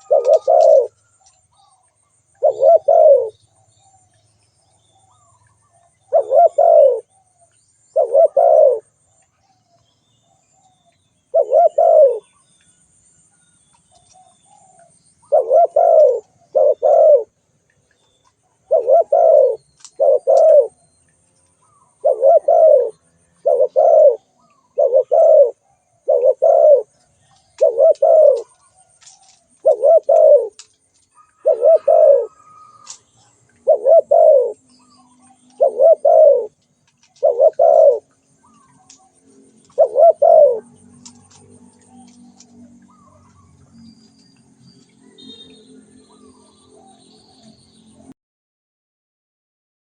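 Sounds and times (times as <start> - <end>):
dove cooing: 0.0 - 3.4, 5.1 - 7.1, 7.9 - 8.9, 11.3 - 12.4, 14.0 - 17.4, 18.6 - 20.8, 21.6 - 43.9.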